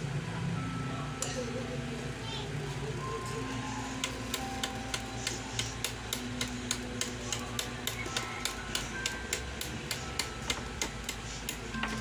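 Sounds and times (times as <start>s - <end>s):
music with clicking beat: 3.2s - 12.0s.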